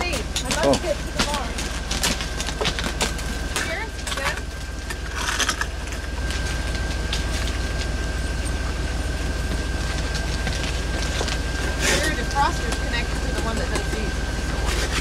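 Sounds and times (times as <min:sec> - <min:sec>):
faint steady whine: 0:00.0 - 0:15.0
steady low hum: 0:00.0 - 0:15.0
scraping ice off a car: 0:00.1 - 0:06.6, 0:10.3 - 0:15.0.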